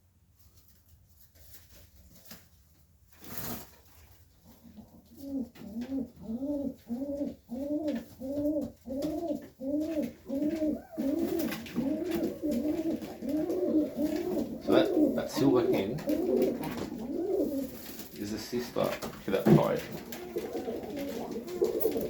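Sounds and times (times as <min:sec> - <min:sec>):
pigeon cooing: 0:04.4 - 0:22.0.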